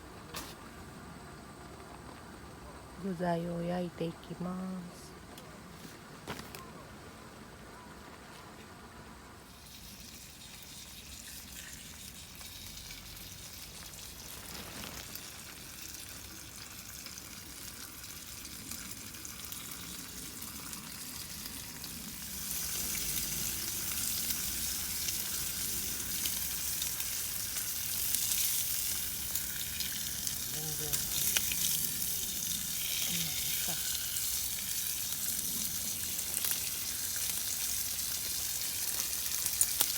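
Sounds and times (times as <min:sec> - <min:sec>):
food sizzling in a pan: 0:09.5 - 0:39.9.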